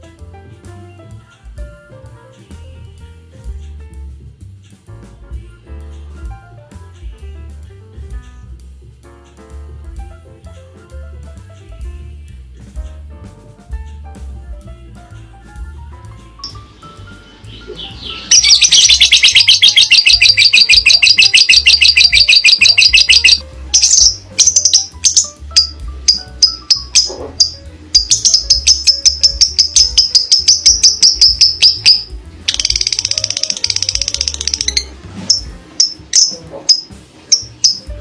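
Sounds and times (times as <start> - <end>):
background music with steady beat: 0.0 - 38.0
parrot shrill chirping: 17.5 - 37.9.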